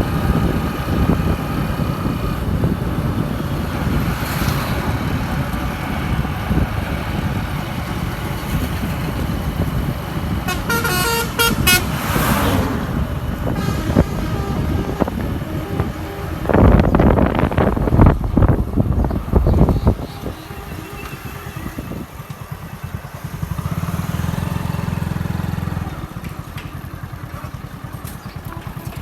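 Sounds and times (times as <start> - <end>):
road and engine rumble: 0.0 - 29.0
vehicle horn short toots: 10.5 - 12.2, 13.4 - 18.1, 19.5 - 22.0.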